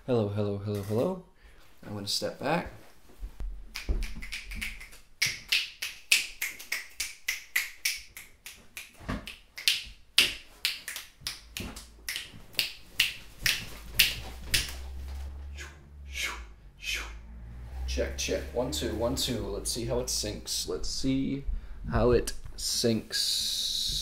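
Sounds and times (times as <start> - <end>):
sharp irregular snaps: 3.6 - 17.0.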